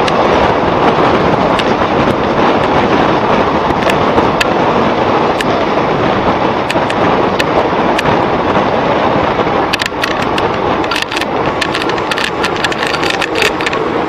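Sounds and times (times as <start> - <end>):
train wind and rolling noise: 0.0 - 14.0
wheel clicks on track: 9.6 - 14.0.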